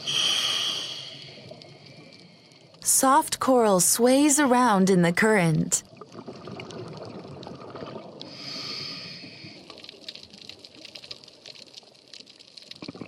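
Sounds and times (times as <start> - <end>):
breath hissing through diving regulator: 0.0 - 1.5, 8.3 - 9.6
small clicks in water: 9.4 - 13.0.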